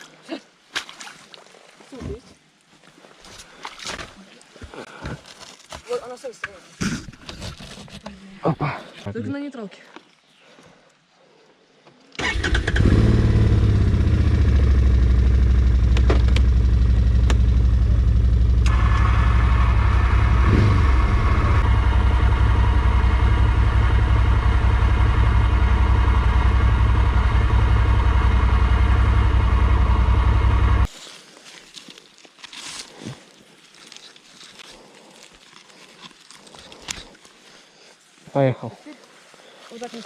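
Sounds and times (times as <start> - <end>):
off-road vehicle engine: 12.2 - 30.9.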